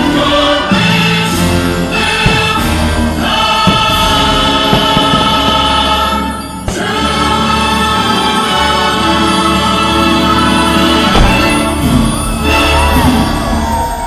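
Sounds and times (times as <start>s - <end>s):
choir singing sustained chords: 0.0s - 14.0s
orchestral show music: 0.0s - 14.0s.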